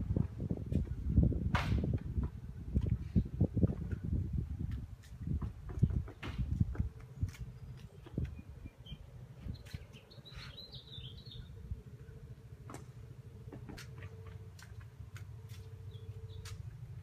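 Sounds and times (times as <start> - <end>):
bird chirping: 7.0 - 12.2, 15.6 - 16.6.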